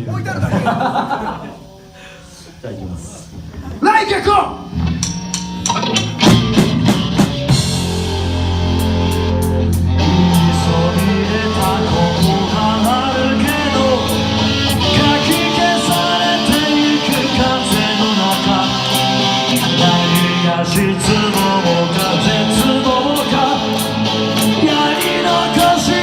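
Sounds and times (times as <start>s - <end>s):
drum kit: 3.3s - 26.0s
bass guitar: 4.5s - 26.0s
cymbal beat: 4.6s - 17.2s
electric guitar: 4.6s - 26.0s.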